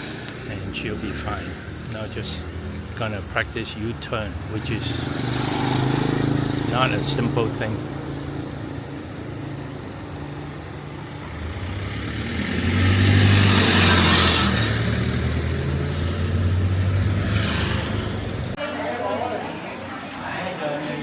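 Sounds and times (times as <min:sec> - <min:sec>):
vehicle engine passing: 0:04.0 - 0:18.6.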